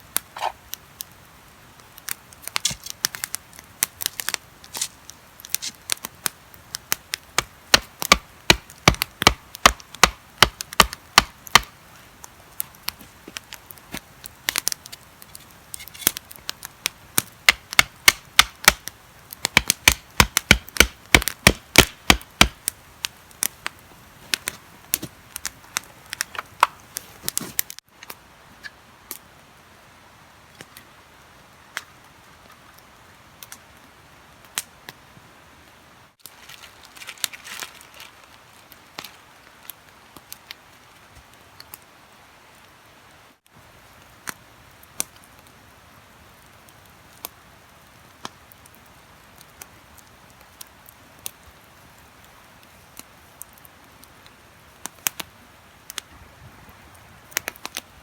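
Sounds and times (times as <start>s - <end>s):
sharp chopping strikes: 2.6s - 2.9s, 7.4s - 11.7s, 17.5s - 18.9s, 19.6s - 22.6s.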